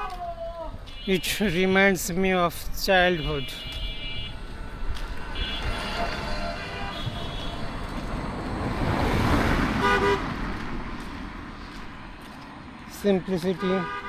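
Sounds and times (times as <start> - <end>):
motor vehicle passing: 4.4 - 13.4.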